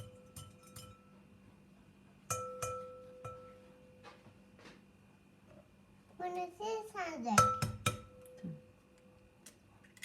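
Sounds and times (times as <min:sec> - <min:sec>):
glass clinking: 0:00.0 - 0:01.2, 0:02.3 - 0:03.7.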